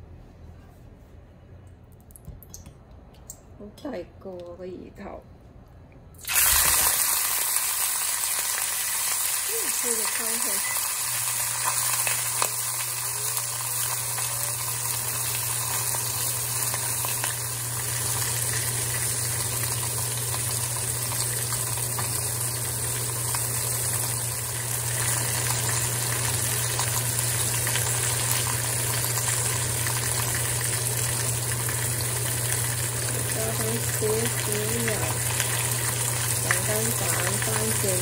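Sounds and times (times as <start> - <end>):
fish frying with sizzling crackles: 6.2 - 38.0.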